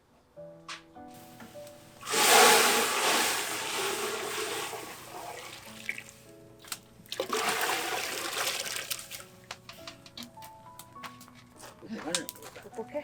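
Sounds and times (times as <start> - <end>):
quiet background music: 0.0 - 13.0
water rushing: 2.0 - 6.2.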